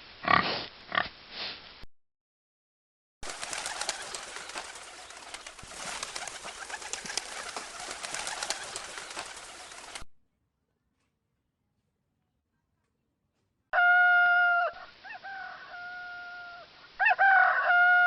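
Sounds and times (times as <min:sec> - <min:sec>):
birds calling: 0:03.3 - 0:10.0.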